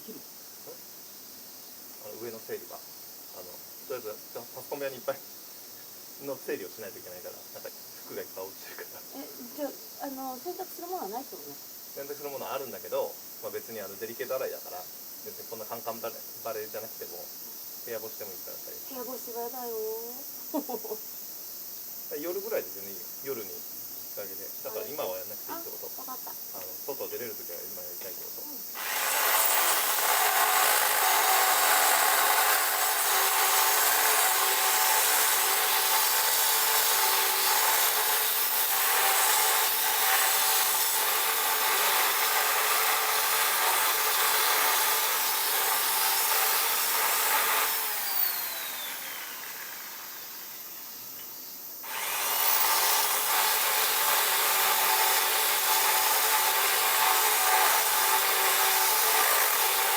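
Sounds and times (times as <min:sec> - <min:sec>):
electric power tool running: 0:28.8 - 0:50.7, 0:51.8 - 0:59.9.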